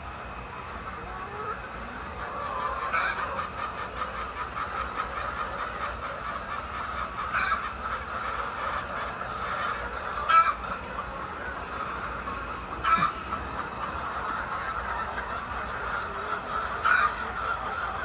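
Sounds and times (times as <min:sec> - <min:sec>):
hens clucking and chattering: 0:00.0 - 0:18.0.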